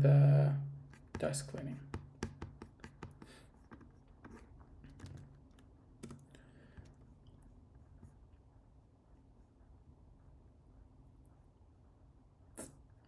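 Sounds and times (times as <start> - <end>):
faint keyboard typing: 2.2 - 7.4.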